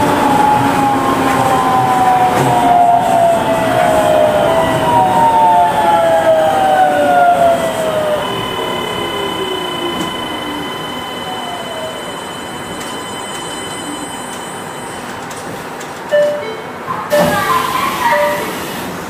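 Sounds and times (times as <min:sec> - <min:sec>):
train running noise: 0:00.0 - 0:19.0
train motor whine falling in pitch: 0:07.1 - 0:13.6.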